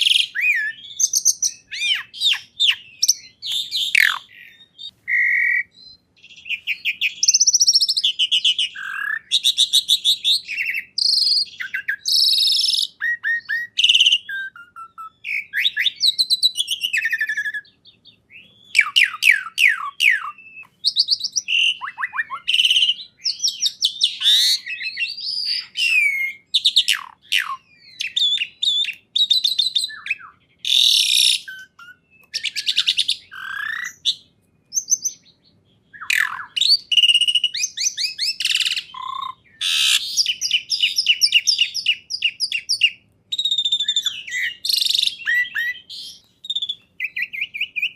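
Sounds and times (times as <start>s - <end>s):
songbird singing trills and chirps: 0.0s - 47.9s.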